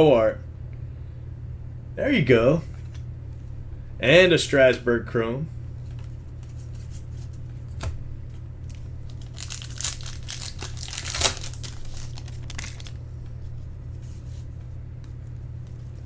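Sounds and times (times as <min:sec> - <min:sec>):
steady low hum: 0:00.0 - 0:16.0
foil wrapper crinkling and tearing: 0:08.7 - 0:13.0.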